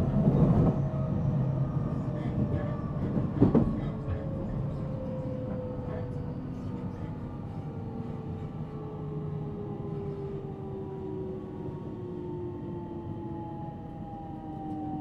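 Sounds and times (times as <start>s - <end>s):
train wheels rumbling on rail: 0.0s - 7.2s.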